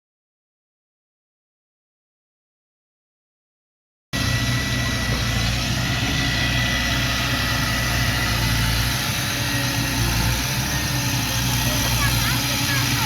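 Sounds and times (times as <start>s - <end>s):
diesel engine idling: 4.2s - 13.0s.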